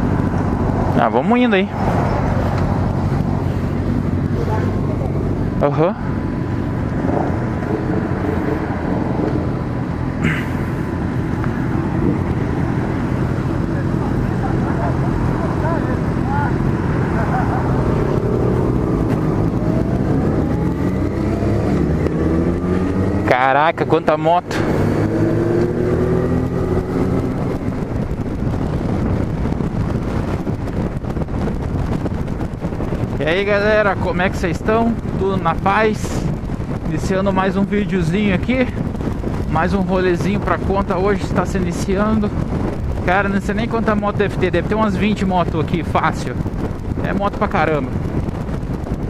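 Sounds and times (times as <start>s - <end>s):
wind rushing over microphone: 0.0s - 49.0s
motorcycle engine running: 24.5s - 34.0s, 46.4s - 49.0s.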